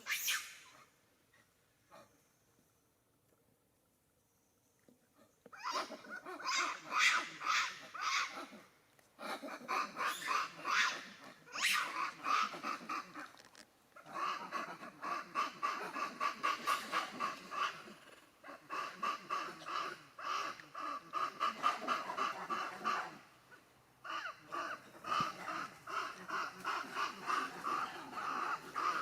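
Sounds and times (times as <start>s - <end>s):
macaque calling in pulsed bursts: 5.6s - 8.6s, 9.2s - 13.3s, 14.0s - 29.0s.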